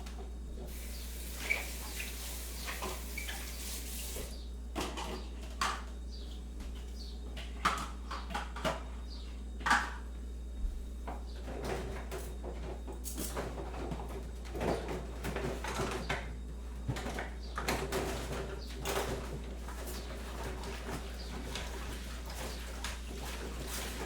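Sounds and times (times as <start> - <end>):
steady low hum: 0.0 - 24.0
water hiss: 0.7 - 4.3.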